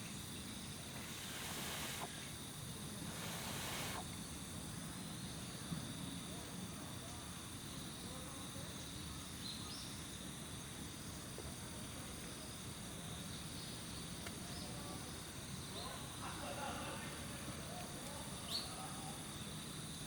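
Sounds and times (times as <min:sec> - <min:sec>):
insects chirping: 0:00.0 - 0:20.0
brief hiss: 0:00.7 - 0:04.3.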